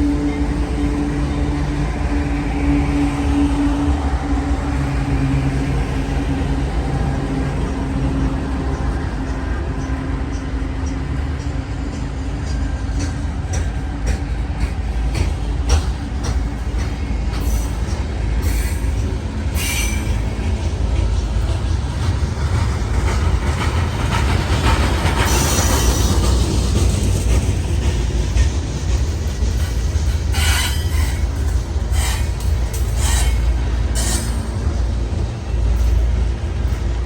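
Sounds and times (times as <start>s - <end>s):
wheels rumbling on rail: 0.0s - 37.0s
wheels clicking over rail joints: 8.6s - 37.0s
high-pitched wheel squeals: 30.3s - 34.5s.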